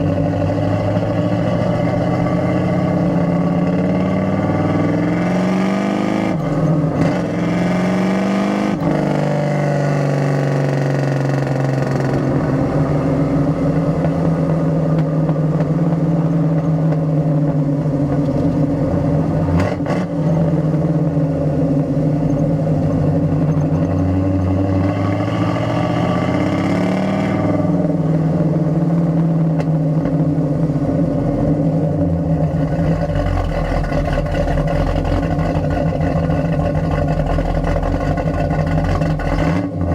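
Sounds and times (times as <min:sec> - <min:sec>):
car exhaust revving: 0:00.0 - 0:39.9.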